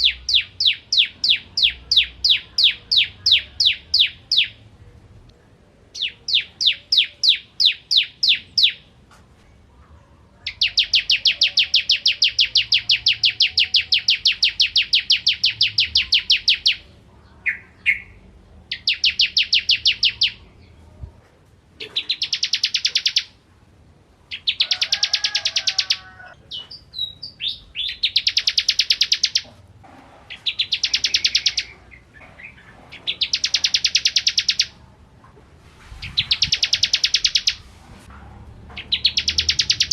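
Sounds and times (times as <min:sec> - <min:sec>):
bird singing fast high chips: 0:06.0 - 0:08.8, 0:10.5 - 0:16.8, 0:17.5 - 0:20.4, 0:22.0 - 0:23.4, 0:26.9 - 0:29.4, 0:30.4 - 0:34.8, 0:36.0 - 0:37.7, 0:38.8 - 0:39.9.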